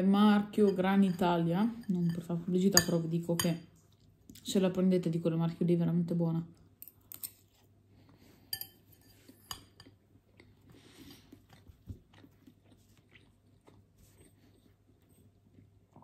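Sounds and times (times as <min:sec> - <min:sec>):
soft chewing: 0:03.7 - 0:04.5, 0:06.6 - 0:16.0.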